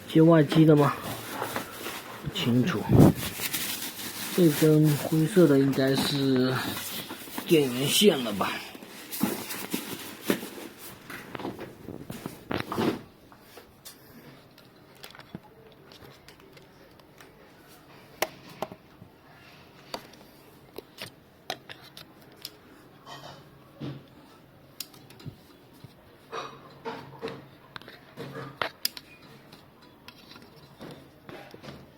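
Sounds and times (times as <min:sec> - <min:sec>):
handling clicks and light knocks: 0:13.6 - 0:17.4, 0:19.8 - 0:22.6, 0:24.8 - 0:31.9.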